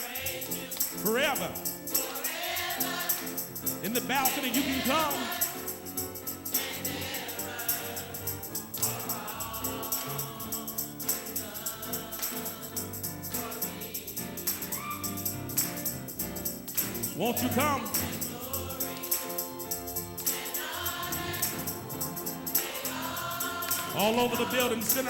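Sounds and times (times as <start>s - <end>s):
choir singing: 0.0s - 15.9s, 16.5s - 25.0s
tambourine shaking: 0.0s - 25.0s
instrumental backing: 13.3s - 25.0s.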